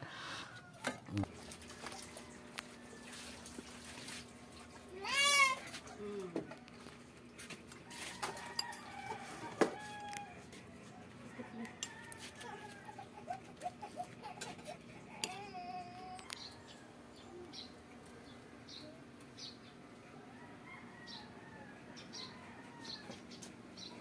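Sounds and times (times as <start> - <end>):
faint birds calling: 12.4 - 24.0.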